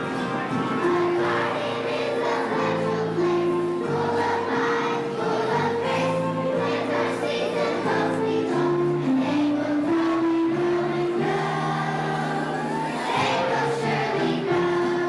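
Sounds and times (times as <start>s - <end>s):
children's choir singing: 0.0s - 15.0s
instrumental accompaniment: 0.0s - 15.0s.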